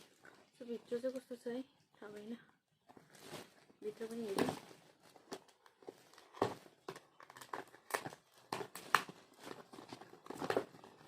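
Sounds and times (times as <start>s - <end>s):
packaging rustling and clicking: 3.0s - 11.0s.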